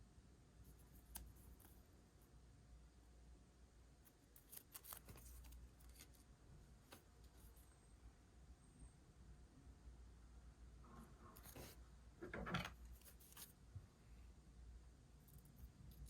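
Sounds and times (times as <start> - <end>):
scissors snipping paper: 4.1 - 6.2.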